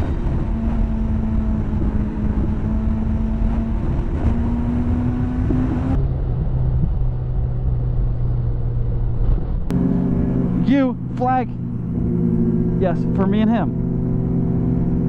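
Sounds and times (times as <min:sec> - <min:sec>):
motorcycle engine running: 0:00.0 - 0:15.0
wind rush: 0:00.0 - 0:15.0.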